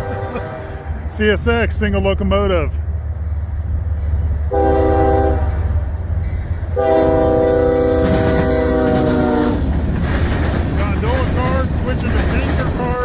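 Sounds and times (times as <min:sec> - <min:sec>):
locomotive air horn blasts: 0:00.0 - 0:01.1, 0:04.5 - 0:05.8, 0:06.7 - 0:09.7
passing train rumble: 0:00.0 - 0:13.0.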